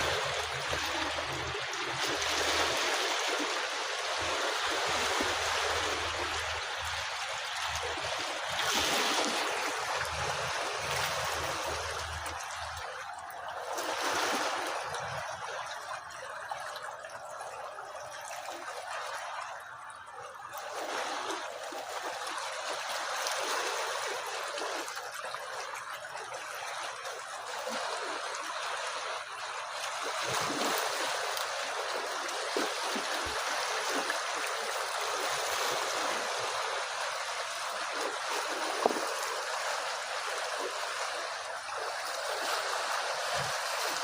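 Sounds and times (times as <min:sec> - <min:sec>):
water rushing and trickling: 0:00.0 - 0:44.0.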